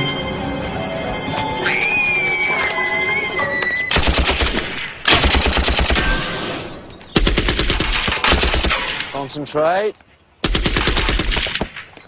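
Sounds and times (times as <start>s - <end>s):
machine gun firing: 3.9s - 6.4s, 7.2s - 9.1s, 10.4s - 11.7s.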